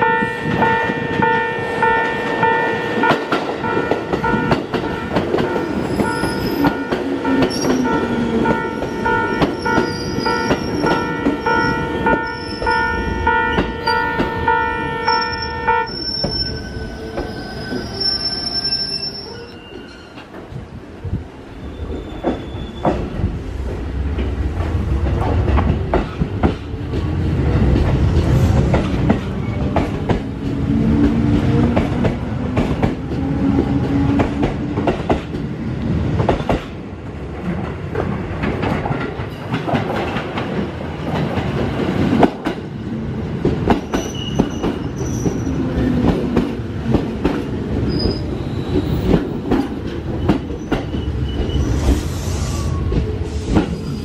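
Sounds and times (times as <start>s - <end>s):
train wheels squealing: 5.6s - 8.0s, 8.6s - 14.2s, 15.0s - 20.4s, 21.5s - 23.2s, 43.8s - 45.8s, 47.8s - 54.0s
level-crossing alarm bell: 5.6s - 19.5s
train running rumble: 21.9s - 36.8s.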